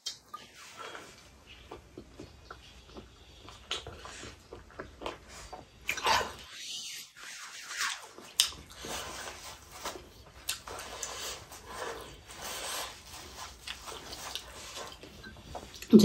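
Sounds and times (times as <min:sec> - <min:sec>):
person chewing food: 0:00.0 - 0:16.0.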